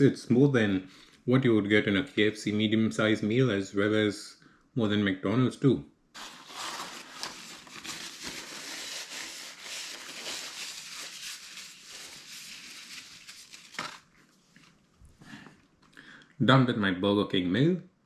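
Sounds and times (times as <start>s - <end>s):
paper packaging rustling: 6.2s - 14.9s.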